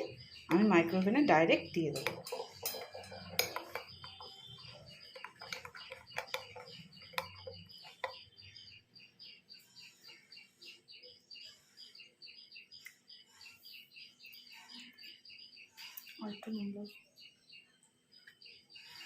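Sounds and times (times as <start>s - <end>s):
utensil clinking and scraping a dish: 0.0s - 8.2s
small bird chirping: 0.0s - 19.0s.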